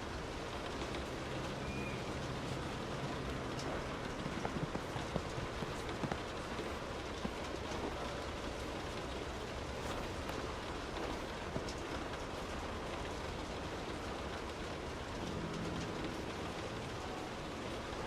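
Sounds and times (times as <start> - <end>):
steady rain hiss: 0.0 - 18.0
drops ticking on a surface: 2.2 - 13.2.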